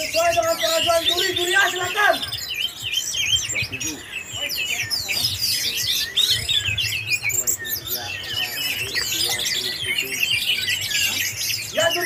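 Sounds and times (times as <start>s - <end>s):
thrushes singing in chorus: 0.0s - 12.0s.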